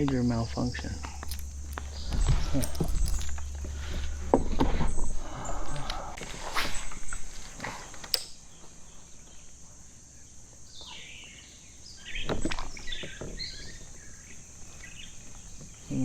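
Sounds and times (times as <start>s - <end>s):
high bird chirps: 0.0s - 5.9s
fishing gear knocks: 1.0s - 5.0s
sharp click: 8.0s - 8.4s.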